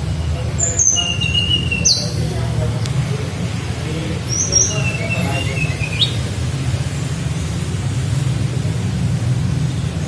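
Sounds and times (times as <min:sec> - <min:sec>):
bird singing whistles and chirps: 0:00.6 - 0:02.3, 0:04.3 - 0:06.3.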